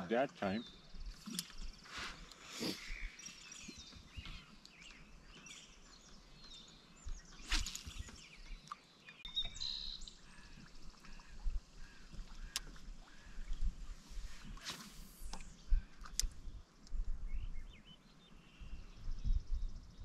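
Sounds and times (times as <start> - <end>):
bird chirps: 0.5 - 10.6.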